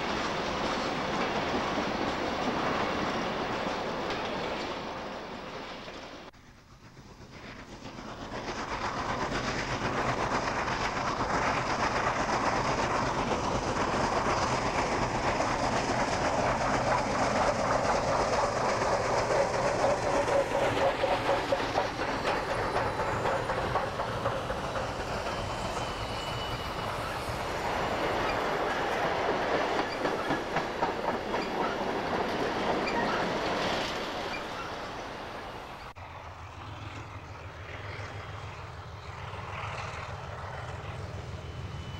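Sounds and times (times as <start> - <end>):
freight train wheels clickety-clack: 0.0 - 41.9
wheel squeal: 19.9 - 28.7, 32.7 - 35.0.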